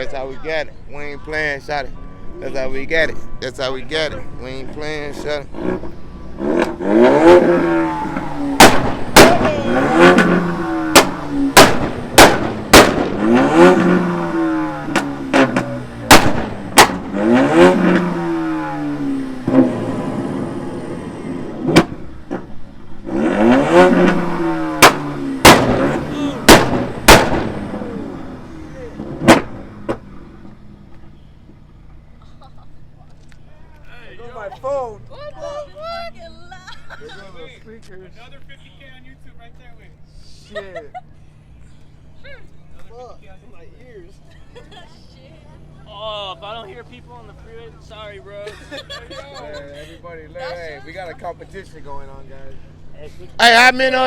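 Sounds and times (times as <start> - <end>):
car engines revving: 0.0 - 54.0
exhaust backfire bangs: 4.6 - 32.0.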